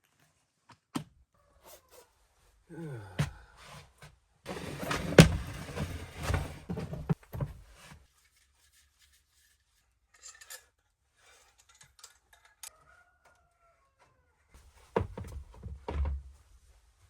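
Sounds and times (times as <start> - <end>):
objects rubbing and clattering: 4.5 - 10.6.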